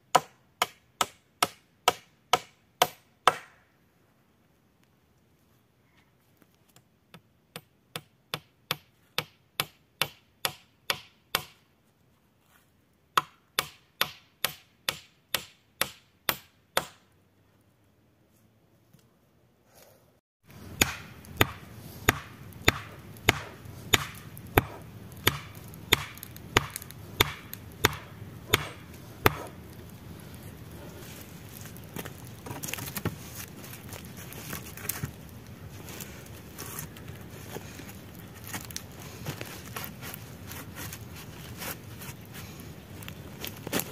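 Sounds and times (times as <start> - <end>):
wood being chopped: 0.1 - 3.6, 13.2 - 17.1, 20.7 - 29.6.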